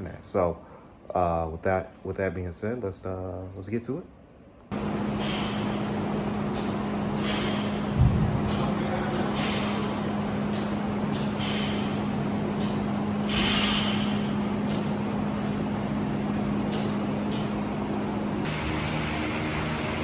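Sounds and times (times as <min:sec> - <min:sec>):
machine hum: 0:04.5 - 0:20.0.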